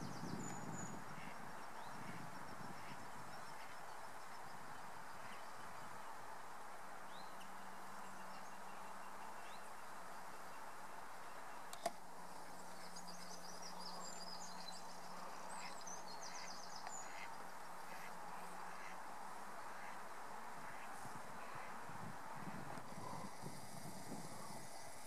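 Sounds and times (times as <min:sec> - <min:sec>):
small birds singing: 0:00.0 - 0:06.0, 0:07.0 - 0:18.9
background hiss: 0:00.0 - 0:25.0
faint low hum: 0:00.0 - 0:25.0.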